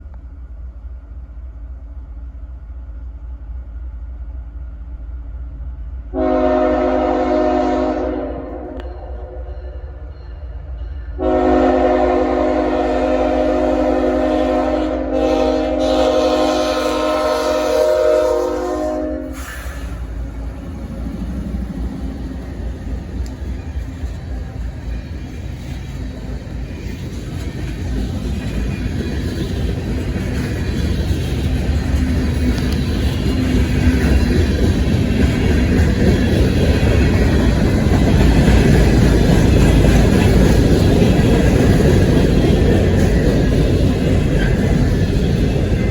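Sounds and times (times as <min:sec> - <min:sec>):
train rumble: 0:00.0 - 0:45.9
locomotive air horn: 0:06.1 - 0:09.4, 0:11.2 - 0:20.1.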